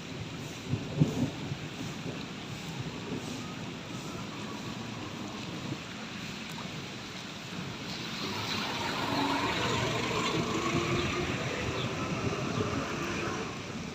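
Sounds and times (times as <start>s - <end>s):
rain falling: 0.0s - 13.9s.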